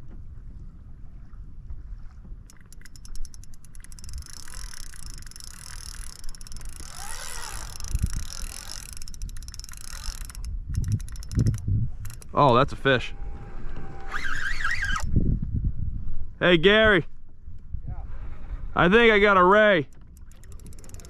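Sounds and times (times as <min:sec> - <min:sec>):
fishing reel drag clicking: 0:02.5 - 0:12.4, 0:14.0 - 0:15.1, 0:19.8 - 0:21.0.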